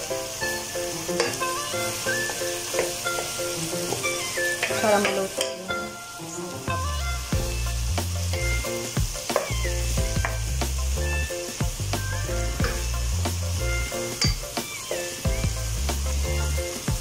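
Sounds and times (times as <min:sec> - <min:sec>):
vegetables sizzling in hot oil: 0:00.0 - 0:17.0
background music with bass: 0:06.3 - 0:14.6, 0:15.3 - 0:17.0.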